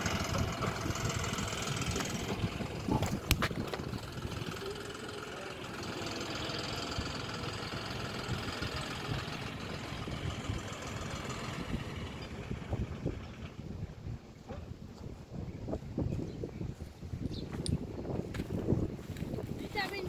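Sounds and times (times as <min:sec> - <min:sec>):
tractor diesel engine running: 0:00.0 - 0:14.4.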